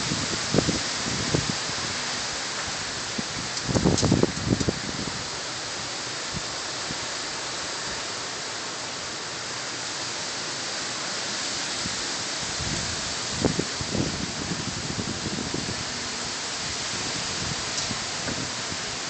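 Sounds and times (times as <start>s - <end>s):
wind gusts buffeting microphone: 0.0s - 2.1s, 2.7s - 5.3s, 11.8s - 19.0s
wind and rain hissing: 0.0s - 19.0s.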